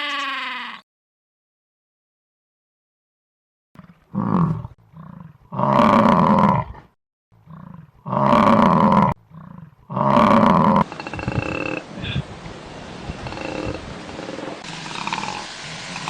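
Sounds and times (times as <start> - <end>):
big cat roaring: 3.8 - 12.2, 13.2 - 15.4.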